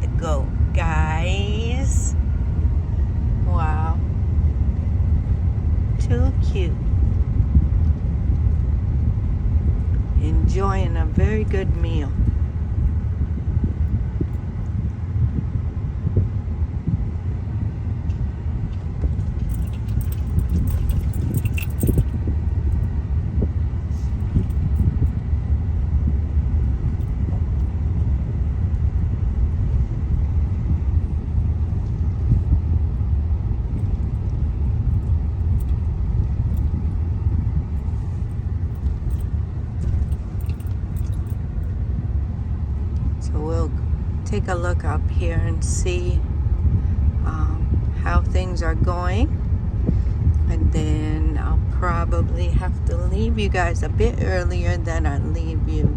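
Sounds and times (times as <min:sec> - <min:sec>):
tyre and engine rumble: 0:00.0 - 0:55.9
light clicks and rattles: 0:18.7 - 0:22.9, 0:33.7 - 0:41.7.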